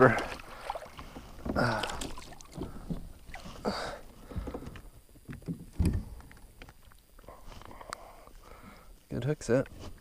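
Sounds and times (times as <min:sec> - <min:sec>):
water splashes: 0:00.0 - 0:03.7
knocks and handling in kayak: 0:00.0 - 0:08.8.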